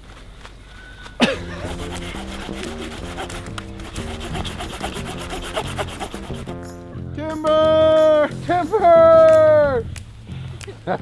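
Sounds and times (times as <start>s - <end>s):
background music: 1.2s - 11.0s
hand saw cutting wood: 1.4s - 6.6s.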